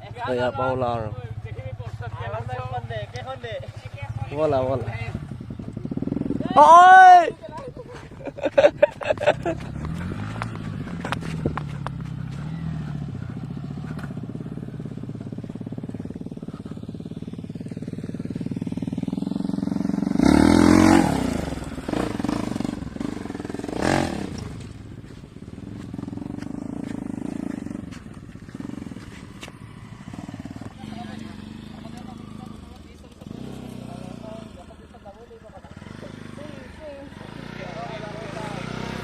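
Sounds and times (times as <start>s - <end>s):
motorcycle engine running: 0.0s - 39.0s
passing engine roar: 9.1s - 39.0s.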